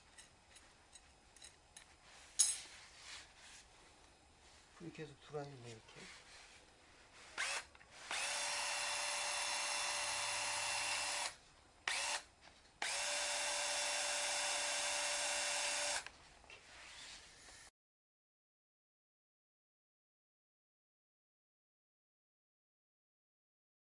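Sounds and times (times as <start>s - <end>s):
rod cutter motor whining: 7.4s - 16.1s.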